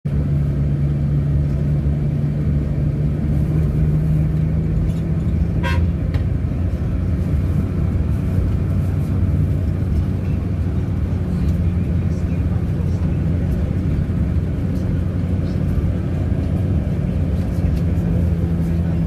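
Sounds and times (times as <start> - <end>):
vehicle engine running: 0.0 - 19.0
horn toot: 5.6 - 6.0.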